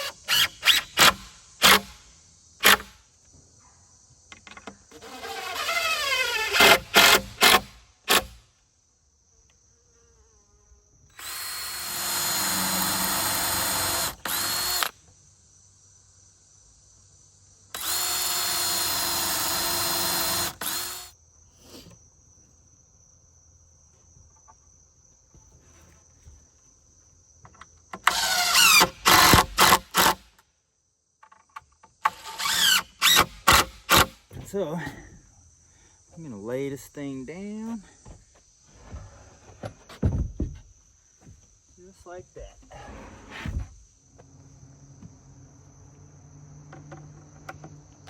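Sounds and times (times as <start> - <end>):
cordless drill running: 5.0 - 7.6, 11.2 - 14.9, 17.8 - 21.1, 28.1 - 30.2, 32.1 - 34.1.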